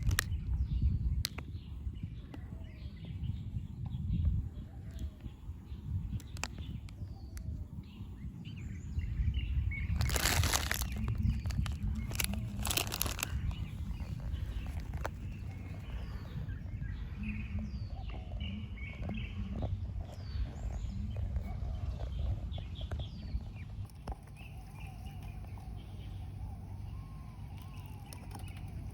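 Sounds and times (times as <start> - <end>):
low outdoor rumble: 0.0 - 28.9
small birds chirping: 0.0 - 28.9
rustling noise: 9.9 - 16.3.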